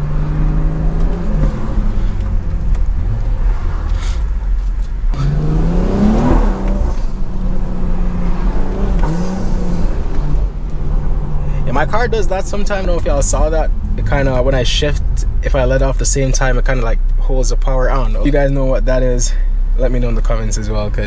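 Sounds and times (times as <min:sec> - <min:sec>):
car engine revving in cabin: 0:00.0 - 0:21.0
person speaking: 0:11.4 - 0:21.0.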